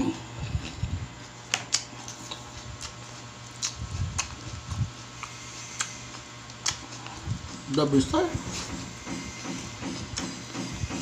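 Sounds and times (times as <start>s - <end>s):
person chewing food: 0.0s - 7.9s
wet mouth-smacking clicks: 1.6s - 7.1s.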